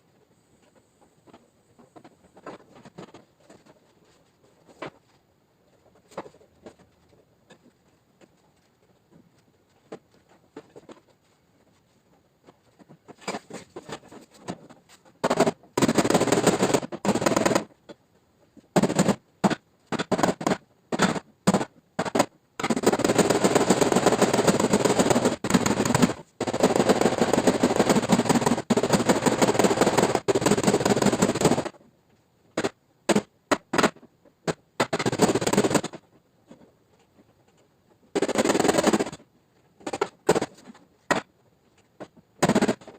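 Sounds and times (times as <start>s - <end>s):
rapid tapping on sheet metal: 15.2s - 17.7s, 18.7s - 31.8s, 32.6s - 36.0s, 38.1s - 39.2s, 42.4s - 42.9s.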